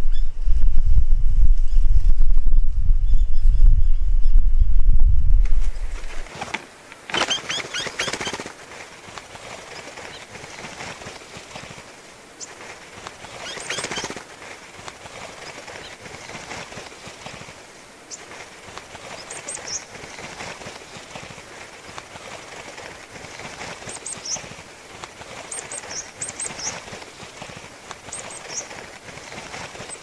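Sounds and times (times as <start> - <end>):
birds chirping: 7.1 - 8.5, 13.2 - 14.2, 28.1 - 28.8.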